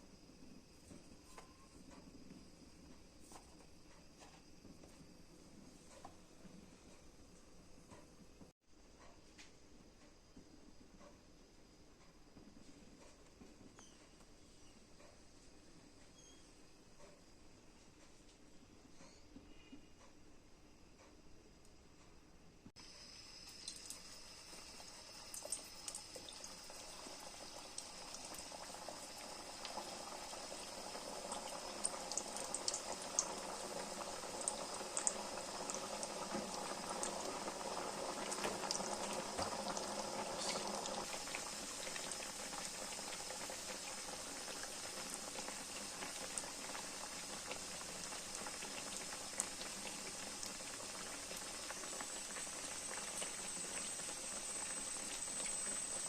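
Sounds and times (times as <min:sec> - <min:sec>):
liquid bubbling in a pan: 0:22.8 - 0:56.0.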